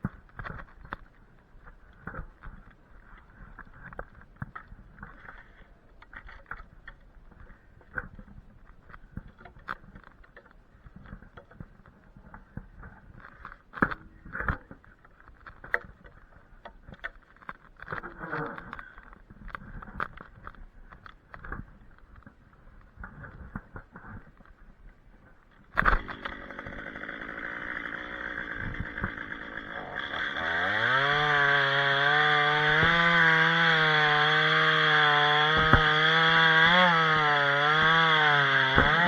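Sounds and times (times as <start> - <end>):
twigs crackling and snapping: 25.5 - 39.0.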